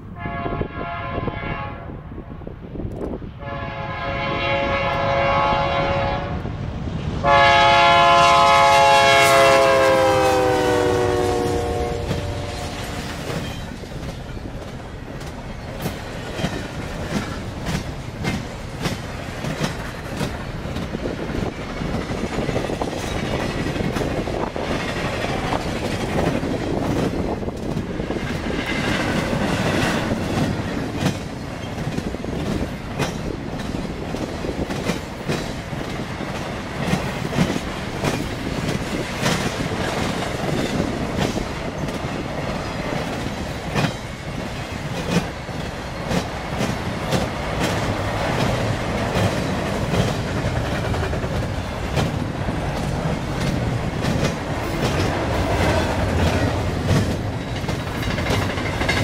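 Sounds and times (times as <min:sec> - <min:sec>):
freight train rumbling: 0:00.0 - 0:59.0
locomotive air horn blast: 0:00.2 - 0:02.0, 0:03.4 - 0:06.5, 0:07.2 - 0:12.9
wheels clacking over rail joints: 0:09.6 - 0:59.0.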